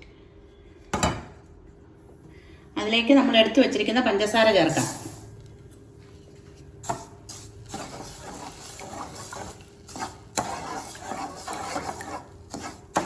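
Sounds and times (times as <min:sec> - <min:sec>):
faint steady hum: 0:00.0 - 0:13.0
spoon scraping metal pan: 0:07.7 - 0:13.0.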